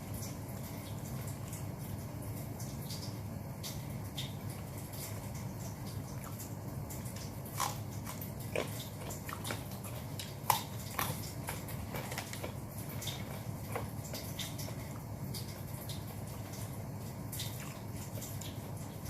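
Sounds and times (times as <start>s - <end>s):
steady low hum: 0.0s - 19.0s
person chewing food: 4.2s - 19.0s.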